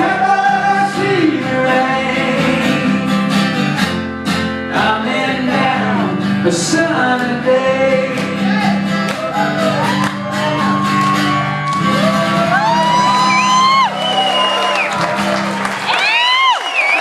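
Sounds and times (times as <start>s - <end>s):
audience whooping and shouting: 8.5s - 17.0s.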